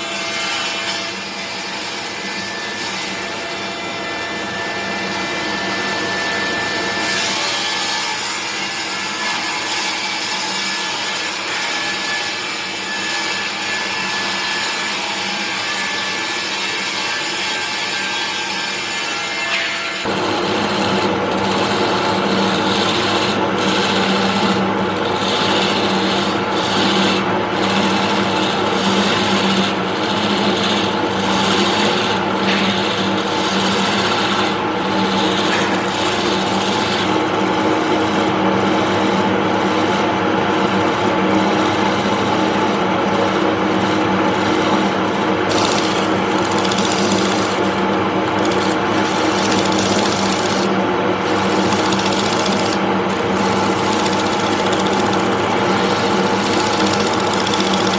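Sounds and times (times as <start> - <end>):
tool scraping spinning wood: 20.0 - 57.9
wood lathe motor humming: 20.0 - 57.9.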